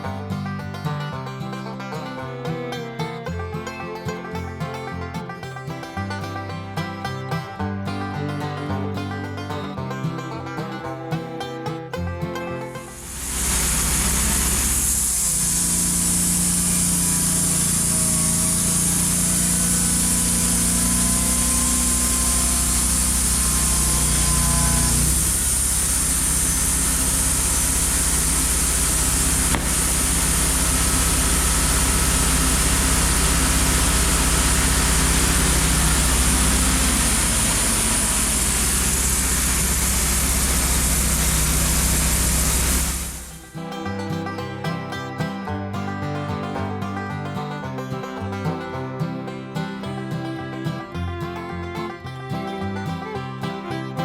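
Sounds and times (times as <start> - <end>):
sawmill engine running: 0.0 - 48.9
blade hissing through log: 12.8 - 43.5.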